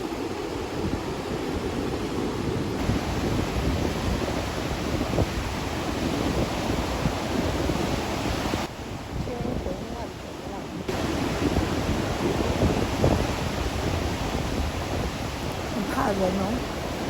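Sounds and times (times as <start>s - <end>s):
surf breaking on beach: 0.0s - 17.0s
wind buffeting microphone: 0.0s - 17.0s.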